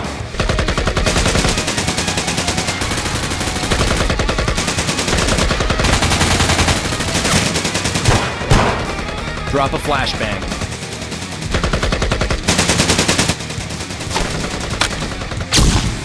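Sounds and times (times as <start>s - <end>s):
automatic weapons firing bursts: 0.0s - 9.5s, 10.4s - 16.0s
single gunshot: 15.5s - 16.0s.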